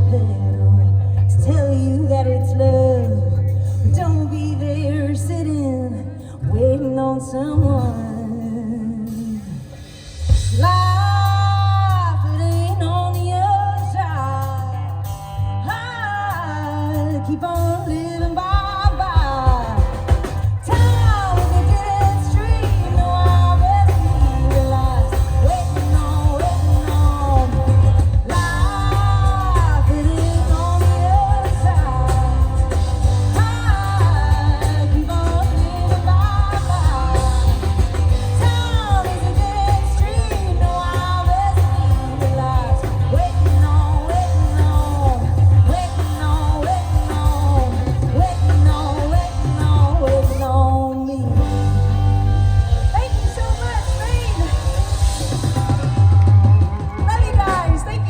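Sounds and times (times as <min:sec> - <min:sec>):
woman singing: 0:00.0 - 0:09.7, 0:10.5 - 0:51.6, 0:52.8 - 0:55.1, 0:56.5 - 0:58.0
live country-pop band: 0:00.0 - 0:58.0.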